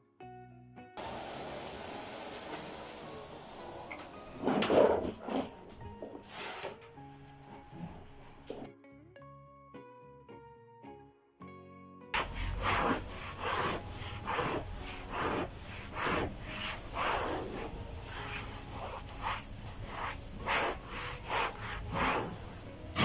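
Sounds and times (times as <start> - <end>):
rubbing or scraping strokes: 3.0 - 8.7, 12.2 - 23.0.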